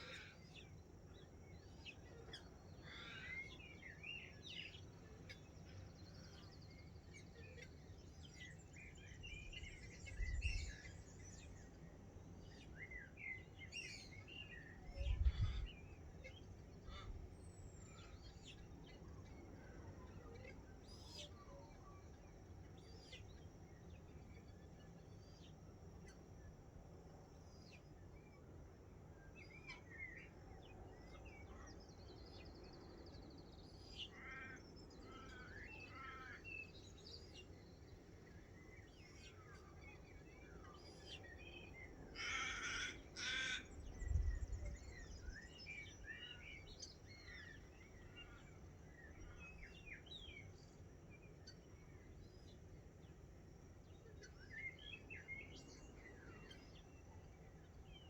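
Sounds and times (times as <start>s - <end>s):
loud bird calls: 34.0s - 36.8s, 40.9s - 45.4s.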